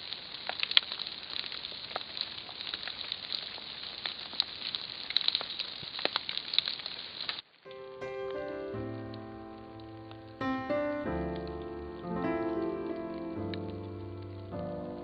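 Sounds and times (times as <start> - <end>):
raindrop ticks: 0.0 - 7.6, 8.2 - 10.4, 11.0 - 15.0
rain falling: 0.0 - 15.0.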